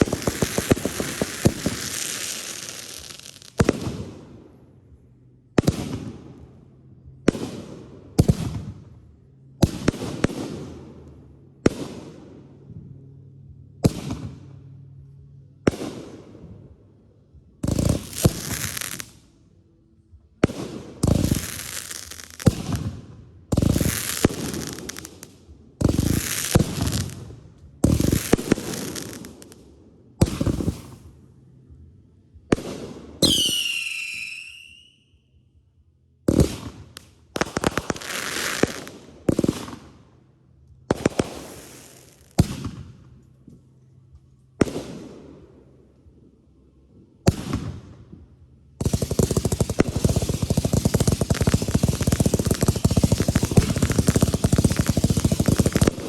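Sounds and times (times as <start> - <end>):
fireworks bursting with crackle: 0.0 - 4.2, 17.6 - 19.2, 20.4 - 31.2, 32.5 - 34.9, 36.3 - 40.0, 40.9 - 43.3, 48.8 - 56.0
firework whistle falling in pitch: 33.2 - 35.1.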